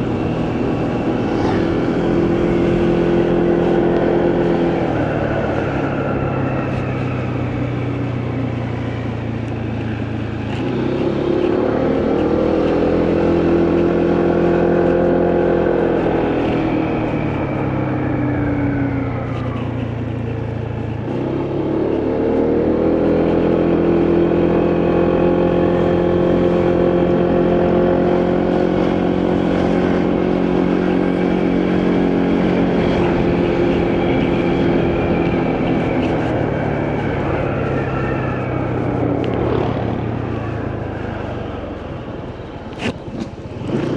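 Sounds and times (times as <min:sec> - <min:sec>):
motorcycle engine running: 0:00.0 - 0:43.9
wind and road noise: 0:00.0 - 0:43.9.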